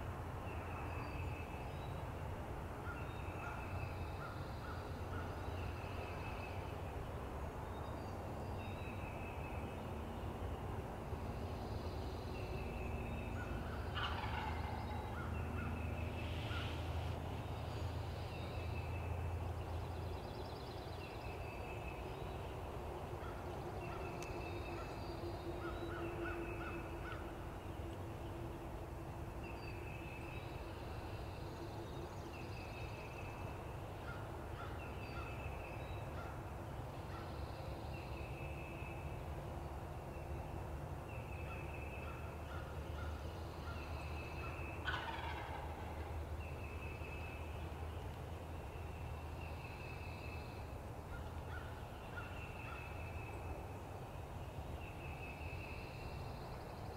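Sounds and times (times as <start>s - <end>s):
songbirds trilling: 2.8s - 56.9s
distant turkey gobbling: 13.4s - 16.8s, 44.4s - 46.1s.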